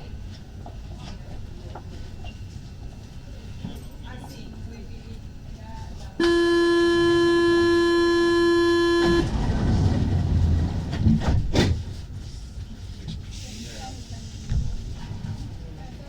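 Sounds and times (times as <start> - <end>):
door warning buzzer: 6.2 - 9.4
train doors sliding shut: 8.9 - 12.5.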